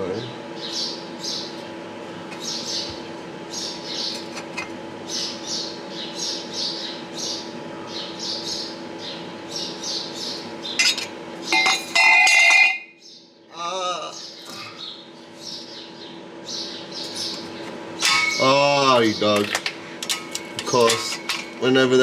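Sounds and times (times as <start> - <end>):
background hum: 0.0 - 22.0
metal parts clattering: 10.8 - 12.8, 18.0 - 21.6.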